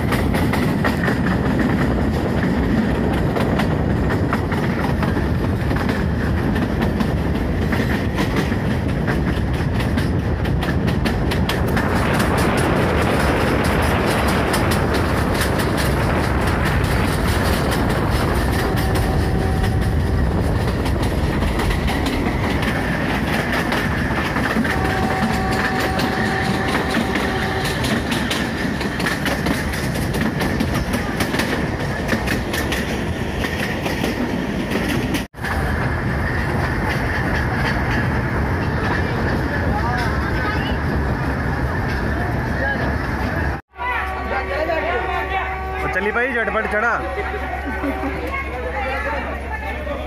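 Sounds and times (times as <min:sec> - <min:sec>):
wheels clattering over rail joints: 0:00.0 - 0:43.6
train rumbling: 0:00.0 - 0:50.0.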